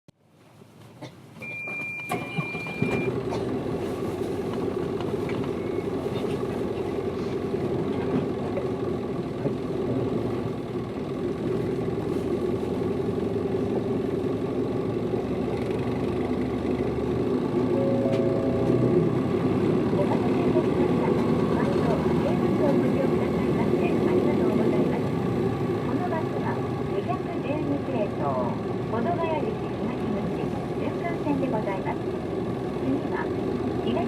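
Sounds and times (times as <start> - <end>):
bus diesel engine running: 0.2 - 34.0
high electronic beep: 17.7 - 19.1.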